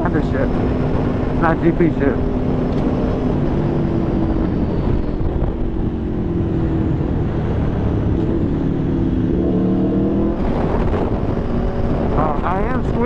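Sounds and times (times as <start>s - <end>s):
motorcycle engine revving: 0.0s - 13.0s
wind and road noise: 0.0s - 13.0s.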